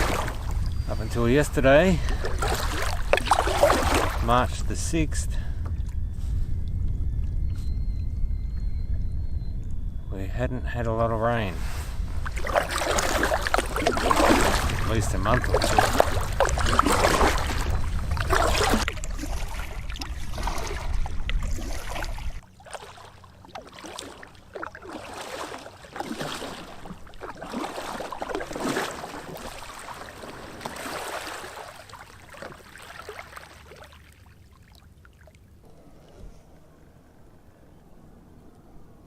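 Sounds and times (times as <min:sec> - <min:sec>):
paddle splashing in water: 0:00.0 - 0:00.6, 0:02.0 - 0:04.4, 0:11.7 - 0:35.3.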